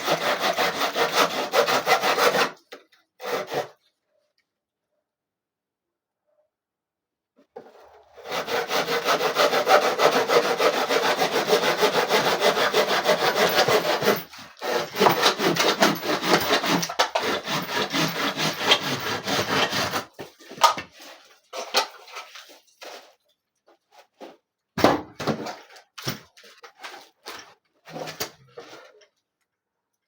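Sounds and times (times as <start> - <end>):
hand tool rasping on wood: 0.0 - 2.6, 3.2 - 3.8, 8.2 - 20.2.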